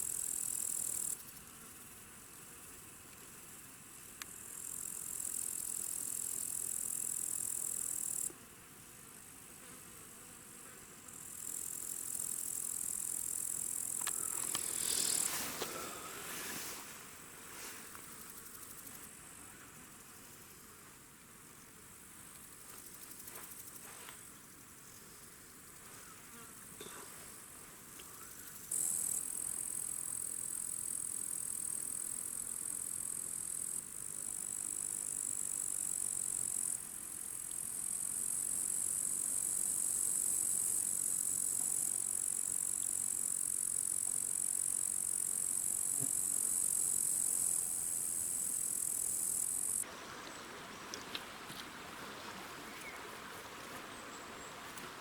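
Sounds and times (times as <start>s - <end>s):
insects chirring: 2.5s - 8.3s, 11.0s - 20.7s, 27.9s - 55.0s.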